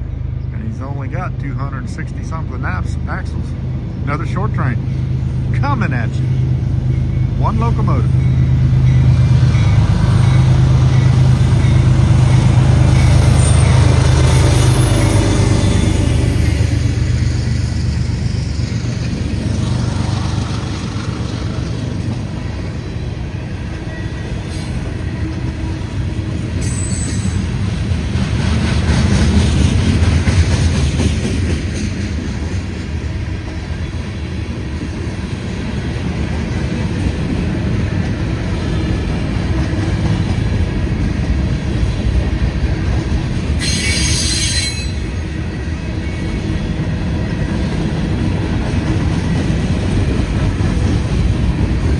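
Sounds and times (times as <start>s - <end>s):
train wheels rumbling on rail: 0.0s - 51.9s
wheel squeal: 26.6s - 27.6s, 43.6s - 45.2s.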